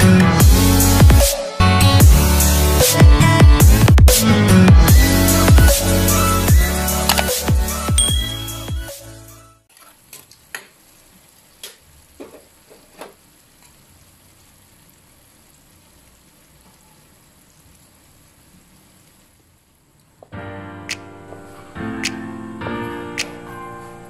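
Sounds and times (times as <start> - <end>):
electronic music: 0.3 - 9.3.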